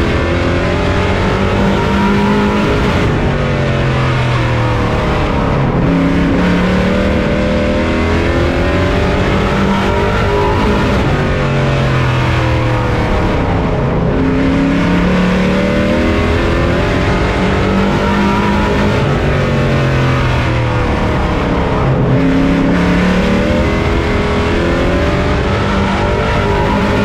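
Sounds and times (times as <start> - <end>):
race truck engine revving: 0.0 - 27.0.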